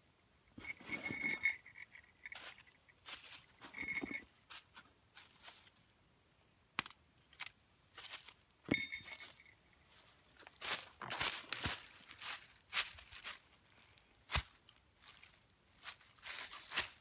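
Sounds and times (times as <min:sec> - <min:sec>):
handling crunches and rustles: 0:00.6 - 0:05.8, 0:06.8 - 0:17.0
sharp metallic clink: 0:08.7 - 0:09.8.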